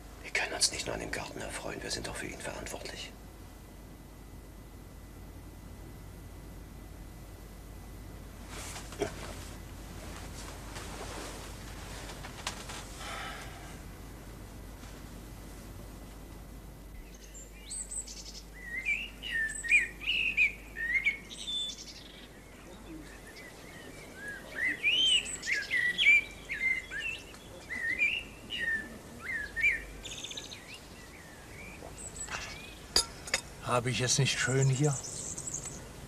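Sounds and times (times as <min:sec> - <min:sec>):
songbird chirping and warbling: 0:17.0 - 0:36.0.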